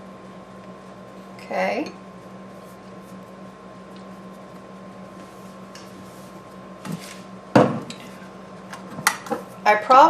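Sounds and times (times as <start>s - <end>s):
dish set down knock: 7.6s - 7.9s.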